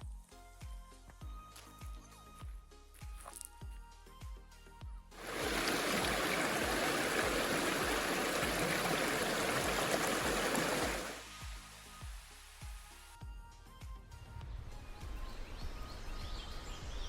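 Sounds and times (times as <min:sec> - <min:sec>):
background music with low beat: 0:00.0 - 0:05.2, 0:11.2 - 0:16.3
river water rushing: 0:05.2 - 0:12.7.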